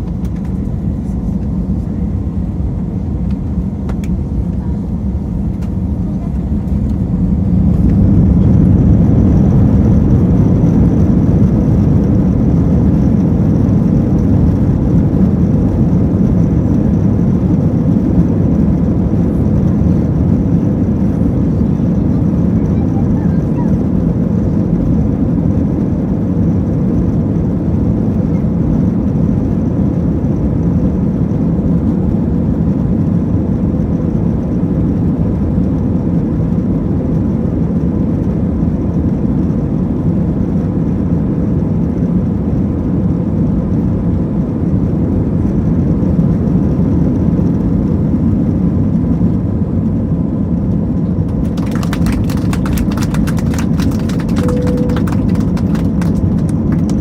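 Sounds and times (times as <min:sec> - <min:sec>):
aircraft engine and airflow rumble: 0:00.0 - 0:57.0
faint steady hum: 0:51.0 - 0:57.0
rapid clicking: 0:51.3 - 0:57.0.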